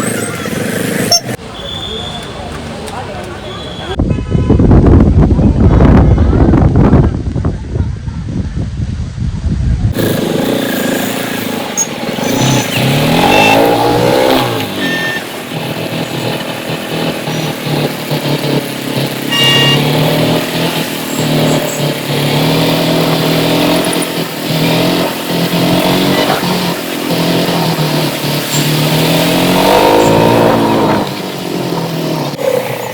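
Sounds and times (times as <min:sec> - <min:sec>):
short high tones: 0:01.1 - 0:02.2, 0:19.2 - 0:20.3
motorcycle engine running: 0:09.9 - 0:32.9.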